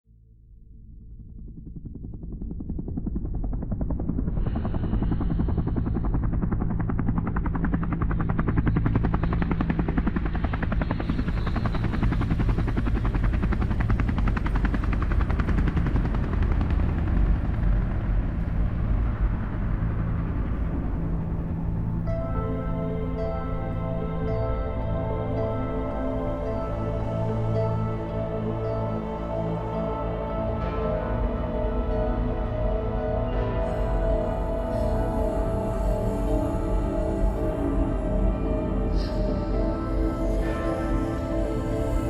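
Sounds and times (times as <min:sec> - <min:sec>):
helicopter rotor chop and engine: 0:01.8 - 0:33.4.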